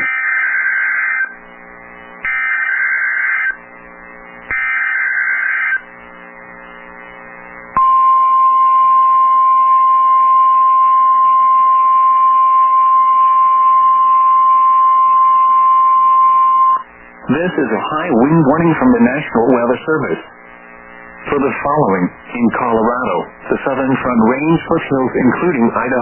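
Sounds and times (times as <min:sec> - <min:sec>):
faint hum: 0:00.0 - 0:26.0
steady high alarm beep: 0:07.8 - 0:16.8.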